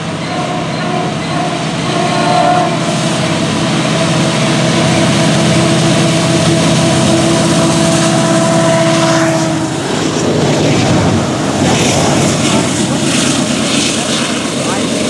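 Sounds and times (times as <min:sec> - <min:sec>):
diesel engine drone: 0:00.0 - 0:15.0
freight train rumbling by: 0:00.0 - 0:15.0.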